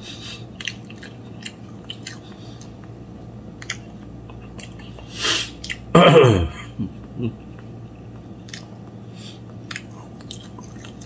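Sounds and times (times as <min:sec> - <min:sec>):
person chewing: 0:00.1 - 0:05.9, 0:07.0 - 0:11.0
breathy hiss: 0:05.0 - 0:05.6.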